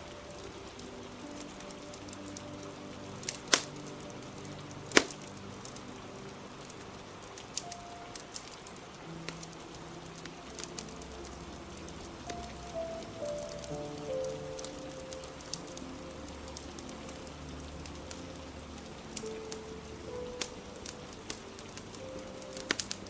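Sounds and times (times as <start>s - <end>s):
rain hiss: 0.0s - 23.0s
soft music with held notes: 0.0s - 23.0s
wood fire crackling and popping: 3.2s - 5.9s.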